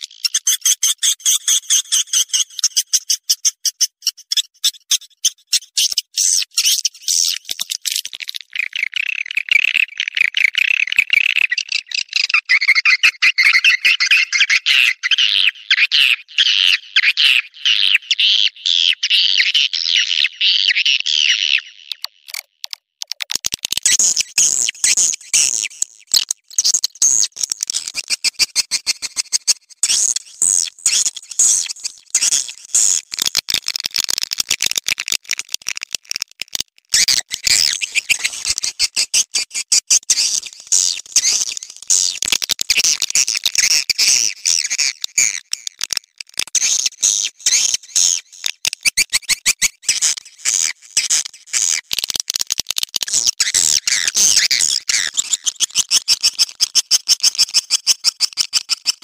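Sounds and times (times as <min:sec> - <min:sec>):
sharp clicks: 0:22.0 - 0:24.3.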